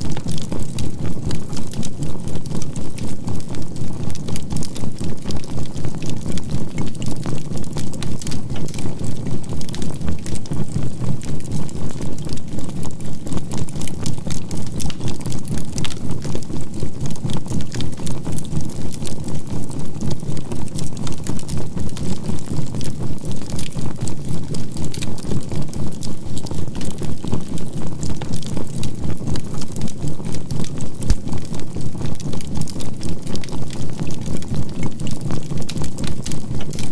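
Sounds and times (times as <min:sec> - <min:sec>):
charcoal fire crackling: 0:07.6 - 0:10.5.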